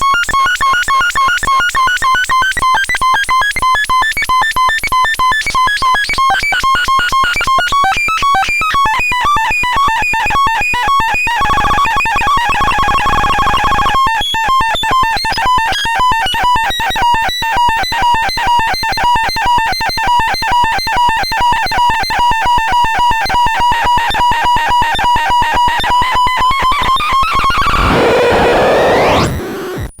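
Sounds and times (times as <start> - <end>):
two-tone electronic tone: 23.5 - 30.0
rapid electronic beeping: 24.7 - 30.0
noisy rising sweep: 26.8 - 30.0.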